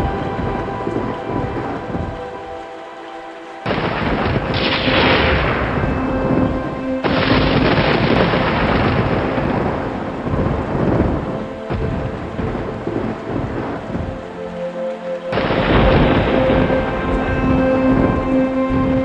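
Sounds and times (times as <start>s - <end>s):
soft music with held tones: 0.0s - 19.0s
steady rain: 0.0s - 19.0s
thunderclaps rolling into rumbling: 3.7s - 14.3s, 15.3s - 19.0s.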